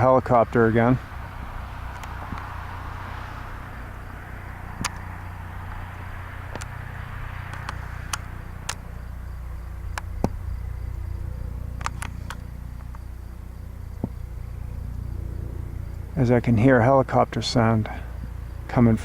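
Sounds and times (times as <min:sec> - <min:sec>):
distant helicopter drone: 0:00.0 - 0:19.0.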